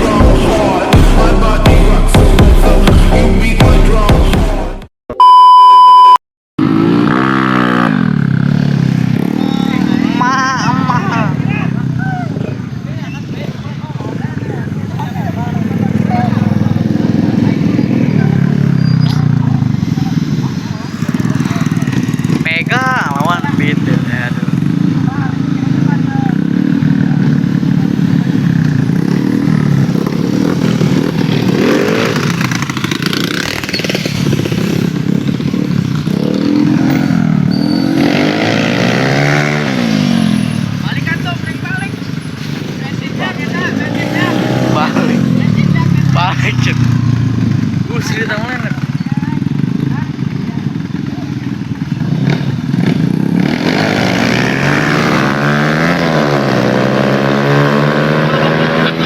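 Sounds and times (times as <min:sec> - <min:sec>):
motorcycle engine revving: 0:06.6 - 0:59.0.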